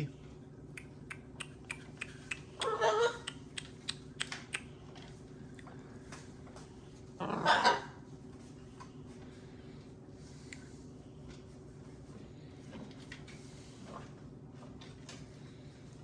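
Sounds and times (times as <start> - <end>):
macaw squawks: 1.8 - 3.7
sharp clicks and taps: 3.2 - 4.7.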